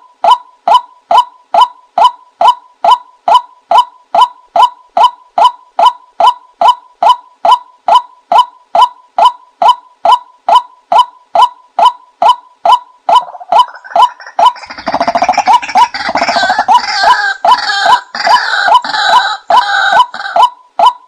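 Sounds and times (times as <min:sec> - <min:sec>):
harsh chattering bird calls: 0:13.1 - 0:20.5.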